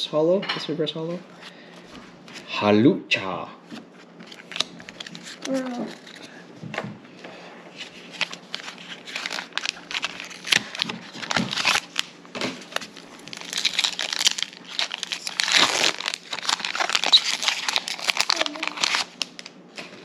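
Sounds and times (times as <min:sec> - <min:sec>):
plastic wrapper crinkling: 0:04.2 - 0:06.4, 0:07.8 - 0:20.0.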